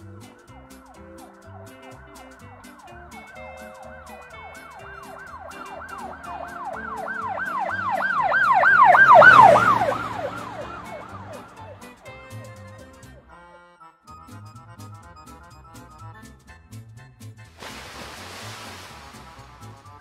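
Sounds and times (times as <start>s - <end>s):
light background music: 0.0s - 20.0s
siren yelping: 0.6s - 13.0s
rush of noise: 17.6s - 19.9s.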